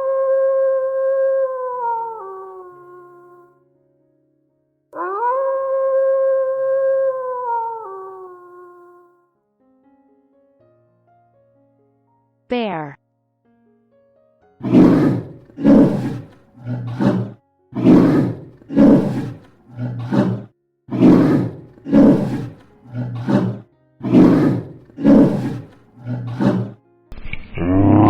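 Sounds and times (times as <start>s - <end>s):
bear roaring: 14.6s - 26.8s.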